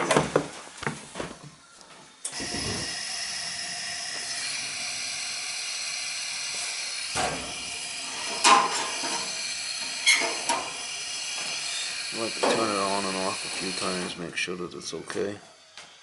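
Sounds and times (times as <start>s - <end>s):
gas burner lighting: 2.2s - 14.4s
gas burner hissing: 2.2s - 16.0s.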